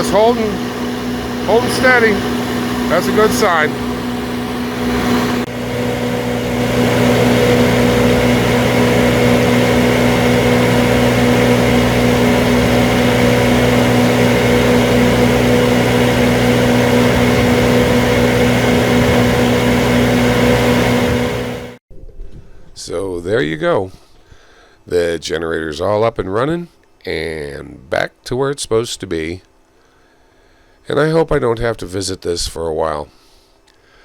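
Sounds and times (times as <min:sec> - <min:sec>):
generator engine humming: 0:00.0 - 0:21.8.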